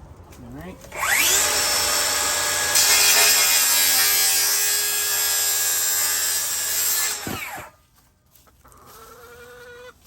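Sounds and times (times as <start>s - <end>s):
saw blade winding down whine: 0.9s - 4.1s
circular saw cutting wood: 0.9s - 7.7s.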